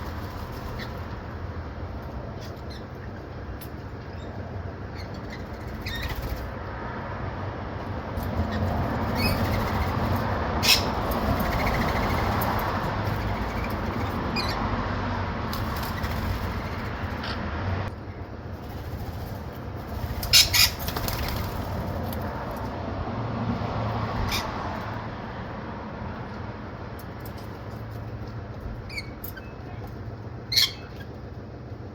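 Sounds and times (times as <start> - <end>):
bird chirps or squawks: 30.5 - 31.1.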